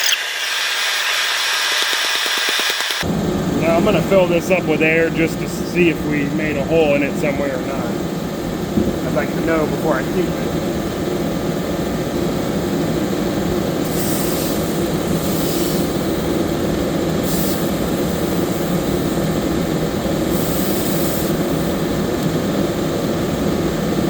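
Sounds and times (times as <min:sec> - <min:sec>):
steady mechanical drone: 0:00.0 - 0:24.0
compressed air hissing: 0:12.9 - 0:22.9.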